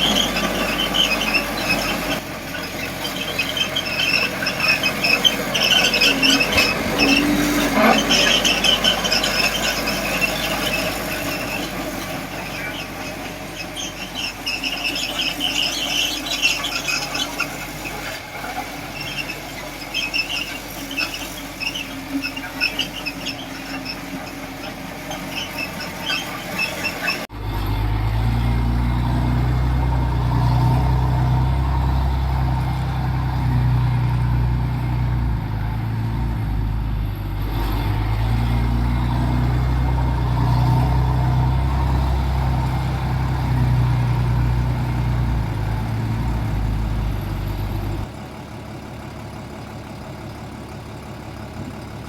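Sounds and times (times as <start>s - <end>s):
bulldozer tracks squealing: 0.0s - 48.2s
low diesel engine drone: 0.0s - 52.0s.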